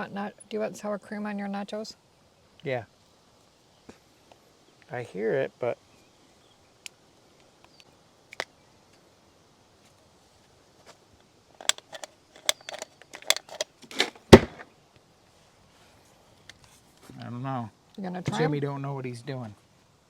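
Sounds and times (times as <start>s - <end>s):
sharp clicks and knocks: 11.6s - 14.6s.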